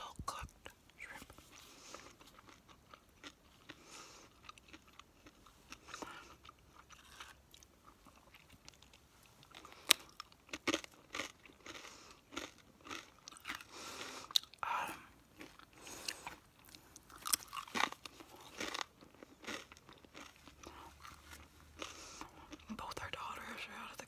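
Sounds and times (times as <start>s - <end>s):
person chewing food: 1.3s - 23.2s
crunchy bites: 1.5s - 14.6s, 15.3s - 22.7s.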